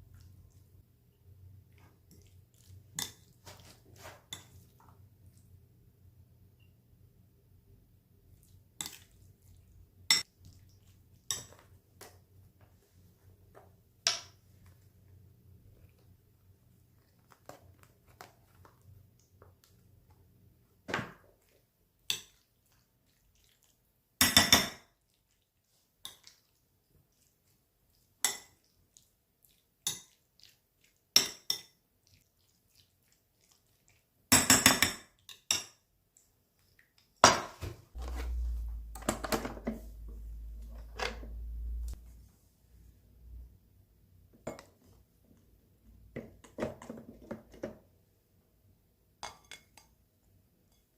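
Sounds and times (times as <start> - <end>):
low steady hum: 38.0 - 44.4.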